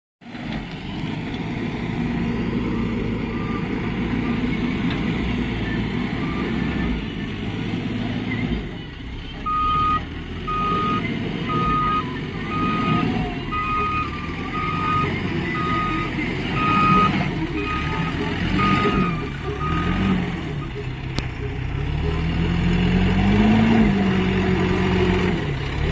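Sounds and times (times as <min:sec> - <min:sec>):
diesel engine running: 0:00.2 - 0:25.9
reversing alarm beeping: 0:02.3 - 0:08.6, 0:09.2 - 0:22.5.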